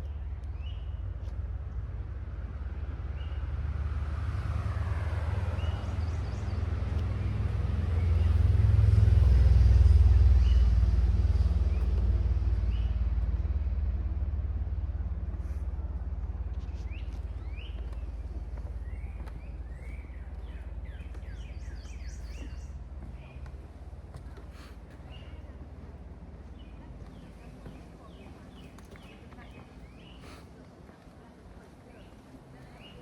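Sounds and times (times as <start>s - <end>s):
vehicle passing by: 2.3s - 18.0s.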